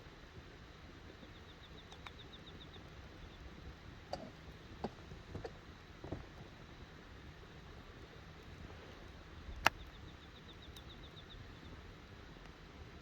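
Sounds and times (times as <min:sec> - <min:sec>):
campfire crackling and popping: 0:06.5 - 0:12.7.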